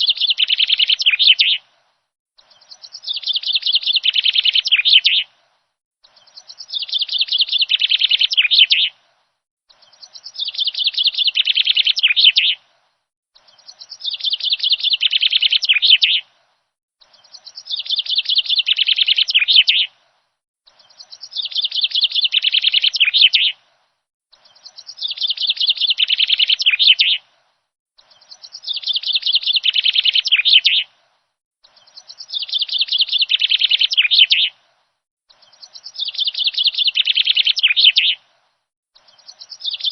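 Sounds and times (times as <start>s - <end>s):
songbird trilling: 2.5s - 5.3s, 6.1s - 8.9s, 9.8s - 12.6s, 13.4s - 16.2s, 17.0s - 19.9s, 20.7s - 23.6s, 24.4s - 27.2s, 28.1s - 30.9s, 31.7s - 34.5s, 35.4s - 38.2s, 39.0s - 39.9s.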